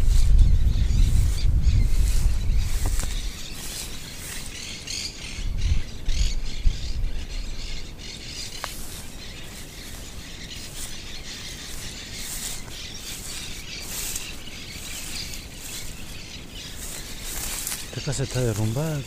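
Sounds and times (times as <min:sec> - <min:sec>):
birds chirping: 0:00.0 - 0:19.0
outdoor background hiss: 0:00.0 - 0:19.0.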